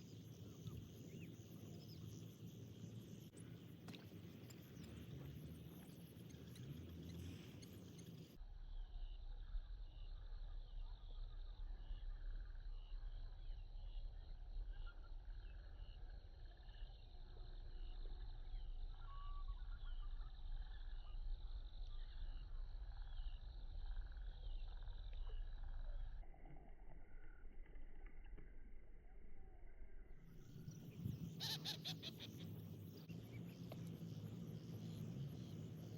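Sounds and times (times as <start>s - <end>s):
low steady rumble: 0.0s - 35.9s
small animal chirping: 31.2s - 32.8s.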